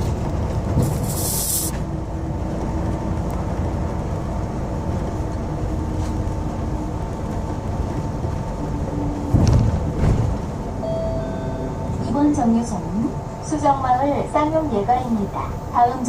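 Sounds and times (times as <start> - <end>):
bus engine rumble: 0.0 - 16.0
short air hiss: 0.9 - 1.8.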